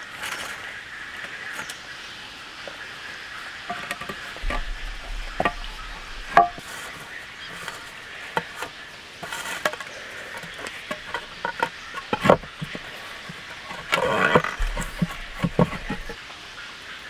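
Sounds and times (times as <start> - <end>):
taps and knocks: 3.7 - 6.6, 10.4 - 16.2.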